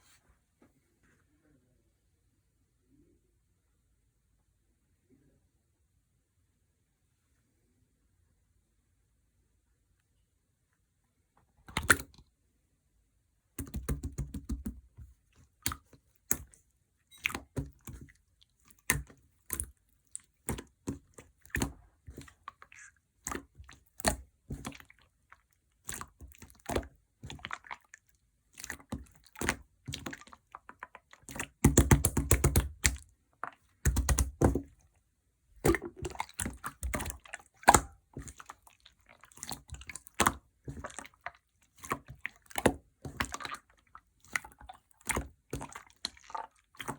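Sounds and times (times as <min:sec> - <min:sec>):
slime being squished: 0:11.6 - 0:12.2, 0:13.6 - 0:35.0, 0:35.6 - 0:46.9.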